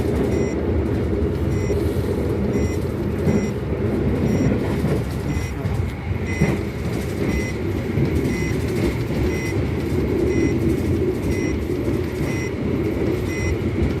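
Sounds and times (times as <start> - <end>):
train rumbling past: 0.0 - 14.0
short electronic beeps: 0.3 - 0.6, 1.5 - 1.8, 2.5 - 3.6, 4.2 - 6.6, 7.2 - 7.6, 8.2 - 8.6, 9.3 - 9.6, 10.3 - 10.6, 11.2 - 11.6, 12.2 - 12.6, 13.2 - 13.6.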